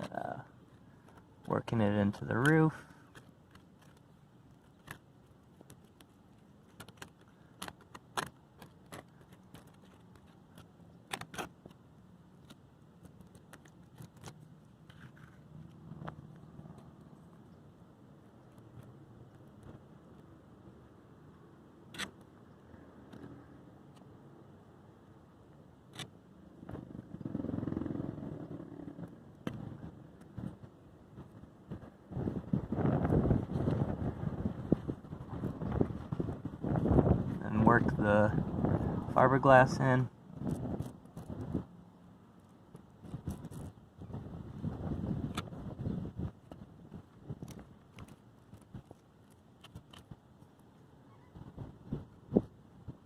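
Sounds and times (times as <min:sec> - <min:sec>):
passing traffic rumble: 0:26.2 - 0:43.5.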